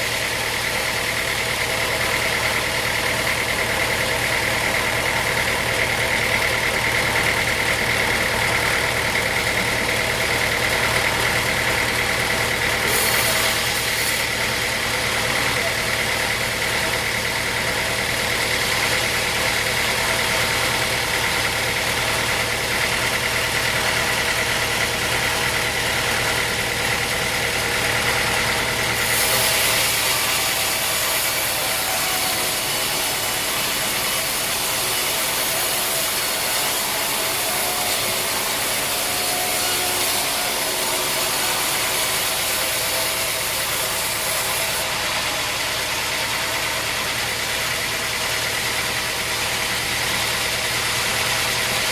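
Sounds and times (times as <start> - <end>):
sawmill saw droning hum: 0.0 - 51.9.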